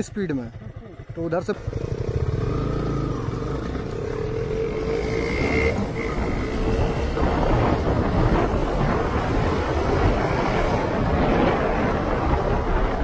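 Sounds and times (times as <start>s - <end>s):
motorcycle engine accelerating: 0.0s - 13.0s
wind noise on microphone: 3.0s - 13.0s.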